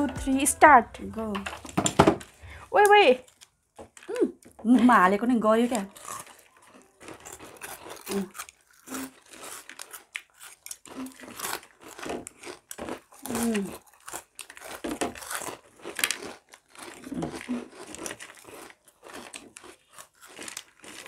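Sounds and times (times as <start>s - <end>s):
person humming: 0.0s - 1.5s
crunching snacks: 1.5s - 4.6s, 5.6s - 21.0s.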